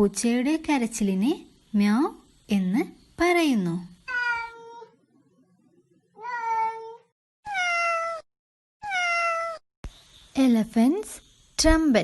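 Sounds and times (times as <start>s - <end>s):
cat meowing: 4.1s - 5.0s, 6.2s - 9.6s.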